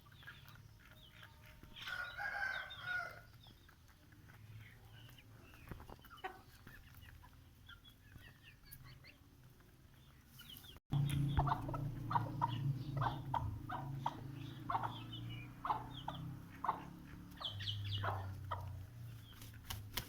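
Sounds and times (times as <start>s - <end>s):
chickens clucking: 0.0s - 20.0s
low steady rumble: 10.9s - 19.2s.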